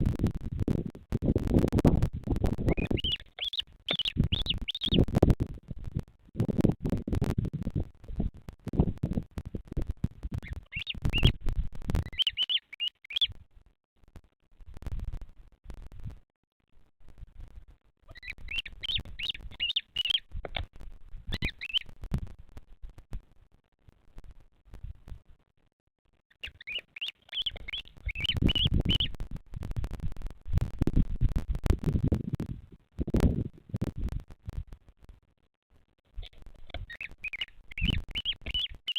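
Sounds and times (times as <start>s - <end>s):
bird chirping: 2.6s - 5.1s, 10.4s - 11.4s, 12.0s - 13.4s, 18.1s - 20.3s, 21.3s - 21.9s, 26.3s - 29.2s, 36.2s - 38.9s.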